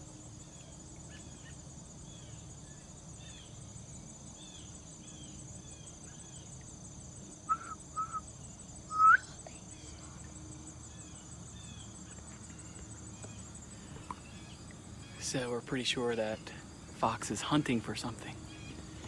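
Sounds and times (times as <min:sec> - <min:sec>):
insects trilling: 0:00.0 - 0:19.0
bird chirping: 0:07.4 - 0:19.0.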